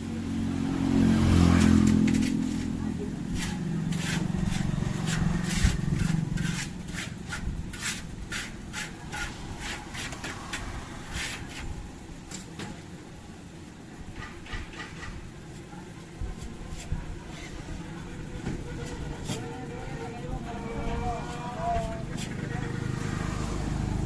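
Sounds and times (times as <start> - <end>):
hand scraping strokes: 1.4 - 11.9, 15.6 - 18.0, 18.6 - 23.6.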